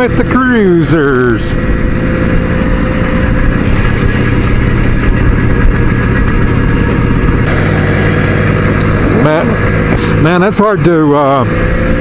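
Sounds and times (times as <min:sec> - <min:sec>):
motorcycle engine cruising: 0:00.0 - 0:12.0
wind rush: 0:01.5 - 0:10.4.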